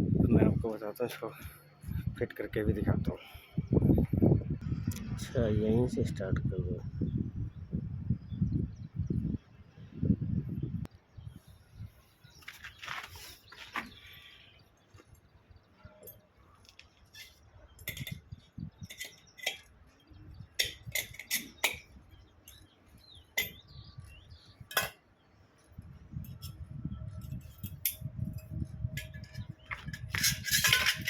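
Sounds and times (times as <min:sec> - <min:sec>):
metal parts clinking: 0:20.6 - 0:22.6, 0:29.0 - 0:31.0.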